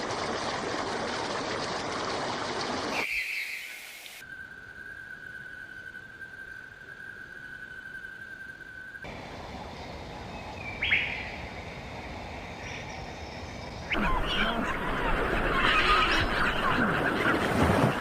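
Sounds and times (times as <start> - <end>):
high whistle-like bird call: 3.0 - 4.0
chorus of chattering birds: 12.6 - 18.0.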